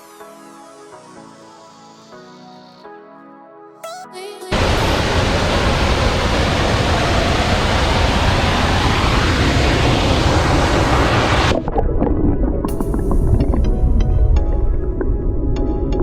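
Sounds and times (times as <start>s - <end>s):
waterfall rushing: 4.5s - 11.8s.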